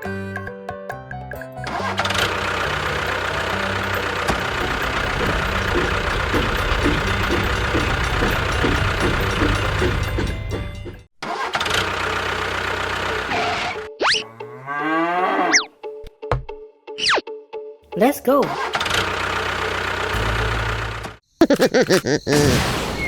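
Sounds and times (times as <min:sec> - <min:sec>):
engine chugging: 0:01.7 - 0:13.6, 0:18.5 - 0:21.7.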